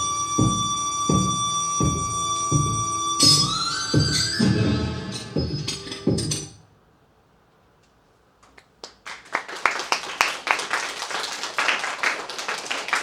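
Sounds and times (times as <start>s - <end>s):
music: 0.0s - 6.6s
audience applauding: 8.8s - 13.0s.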